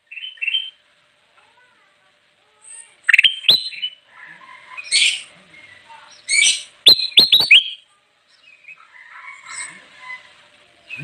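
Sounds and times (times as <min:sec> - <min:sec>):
bulbul singing: 0:00.0 - 0:00.8, 0:02.8 - 0:04.0, 0:04.8 - 0:08.8.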